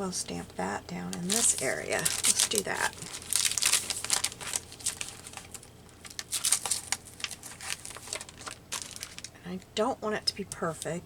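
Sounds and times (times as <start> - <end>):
paper crinkling and rustling: 1.1 - 9.4.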